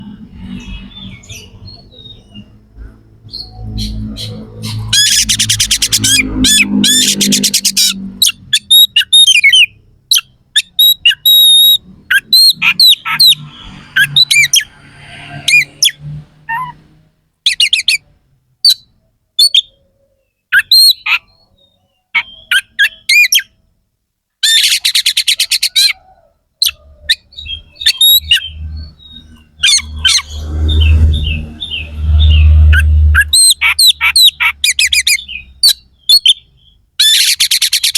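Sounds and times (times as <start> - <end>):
bird singing: 0.0 - 16.8, 17.4 - 23.6, 24.4 - 37.9.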